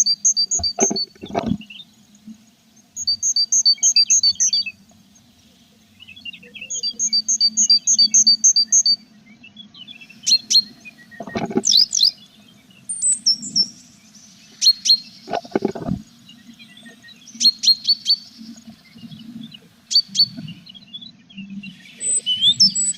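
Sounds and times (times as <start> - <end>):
birds chirping: 0.0 - 22.9
rustling thumps: 0.6 - 1.6, 11.2 - 11.7, 15.3 - 16.1.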